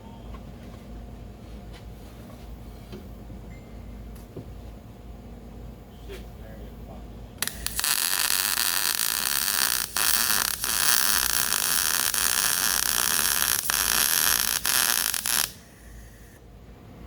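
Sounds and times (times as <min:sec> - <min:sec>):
welding arc: 0:07.4 - 0:16.4.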